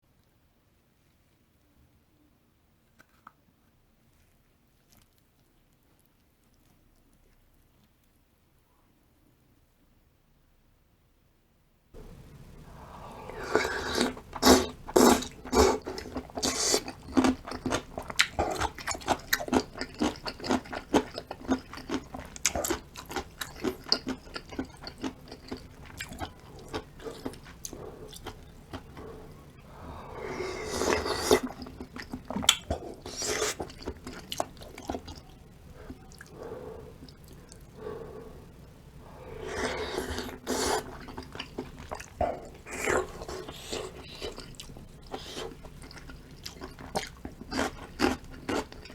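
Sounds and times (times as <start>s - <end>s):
crisp chewing: 4.0s - 8.2s, 13.0s - 38.0s, 39.3s - 48.9s.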